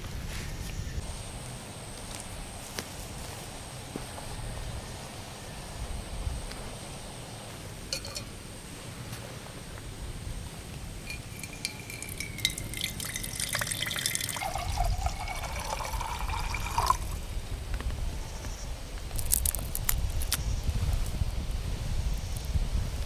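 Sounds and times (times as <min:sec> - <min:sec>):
liquid pouring into container: 0:11.1 - 0:17.2.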